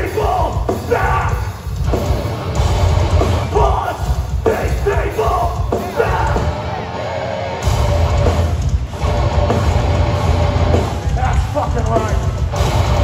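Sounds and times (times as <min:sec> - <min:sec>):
shouted vocals: 0:00.0 - 0:01.6, 0:03.4 - 0:07.4
heavy band playing live: 0:00.0 - 0:13.0.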